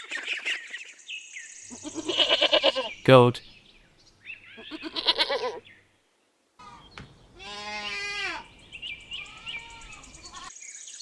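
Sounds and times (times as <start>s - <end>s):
goats bleating: 1.7s - 2.9s, 4.6s - 5.6s, 7.4s - 8.4s.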